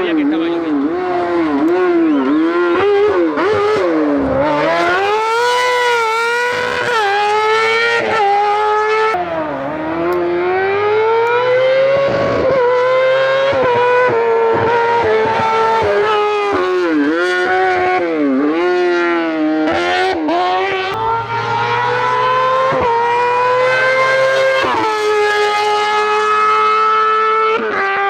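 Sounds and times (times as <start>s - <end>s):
car engine revving high: 20.7s - 28.0s.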